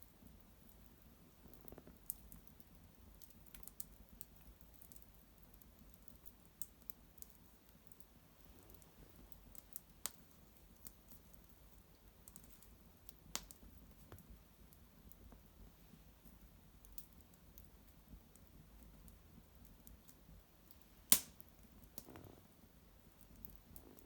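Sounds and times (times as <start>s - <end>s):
twig fire crackling and popping: 0.1s - 24.0s.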